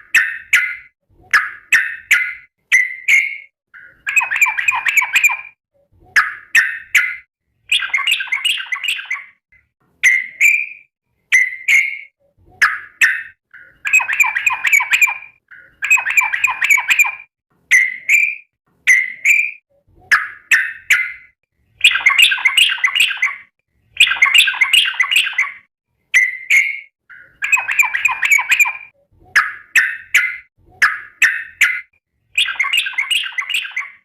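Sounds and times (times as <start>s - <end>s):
bulbul singing: 6.2s - 9.4s, 10.0s - 34.0s.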